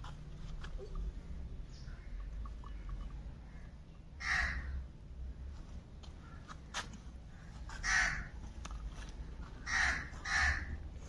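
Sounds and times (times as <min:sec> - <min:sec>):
harsh squawking bird calls: 0:01.7 - 0:04.8, 0:07.3 - 0:08.4, 0:09.6 - 0:10.8.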